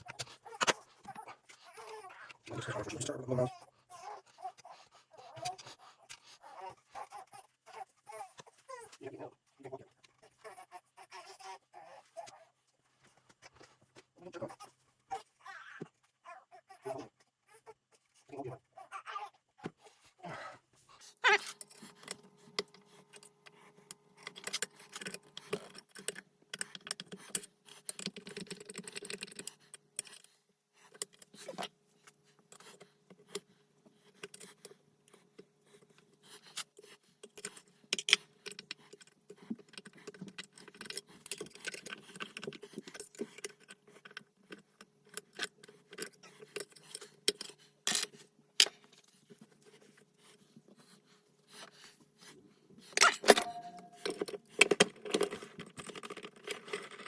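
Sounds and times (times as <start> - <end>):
metal tools clinking and knocking: 21.2 - 30.3, 37.3 - 48.8, 53.0 - 57.0.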